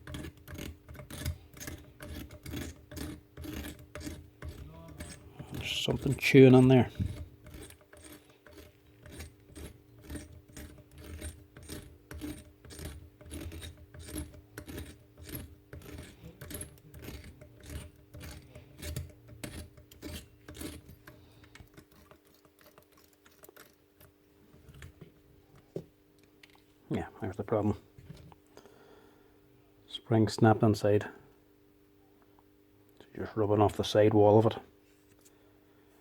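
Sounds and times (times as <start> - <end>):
metallic clicking and chewing: 20.6 - 24.8.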